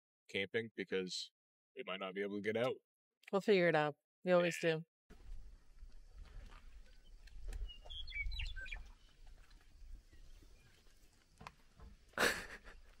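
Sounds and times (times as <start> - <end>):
short bird chirps: 7.0 - 9.1.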